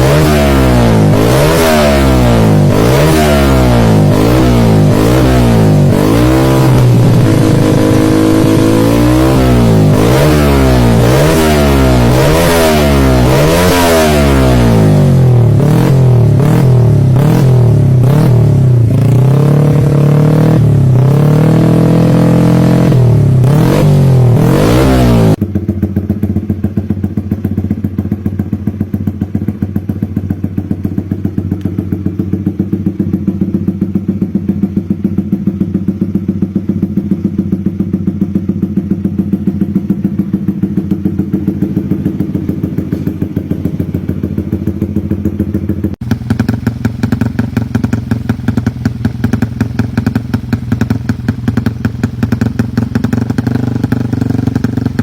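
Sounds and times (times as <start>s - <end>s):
motorcycle idling: 0.0s - 24.5s, 25.3s - 55.0s
motorcycle revving: 0.0s - 55.0s.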